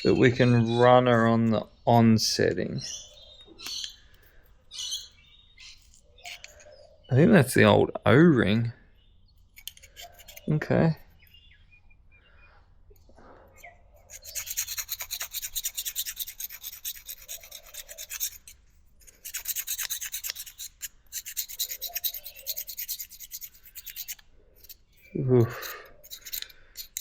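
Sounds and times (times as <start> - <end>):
scrubbing and scraping metal: 9.6 - 10.7, 13.2 - 27.0.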